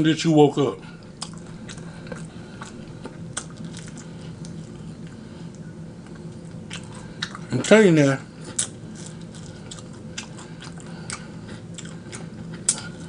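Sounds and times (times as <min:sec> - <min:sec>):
faint steady hum: 0:00.0 - 0:13.0
chewing with wet mouth clicks: 0:01.0 - 0:07.6, 0:08.4 - 0:13.0.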